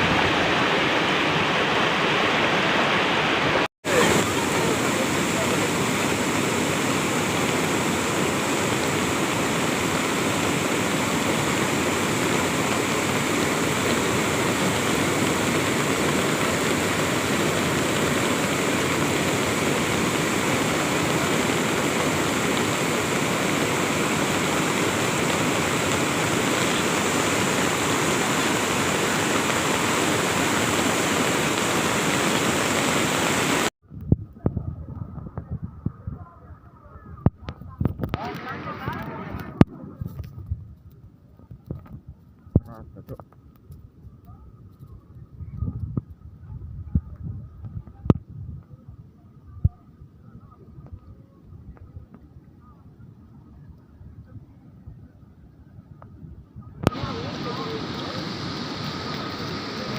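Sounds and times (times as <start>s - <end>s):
floodwater rushing: 0.0s - 33.8s, 37.1s - 40.3s, 56.6s - 59.9s.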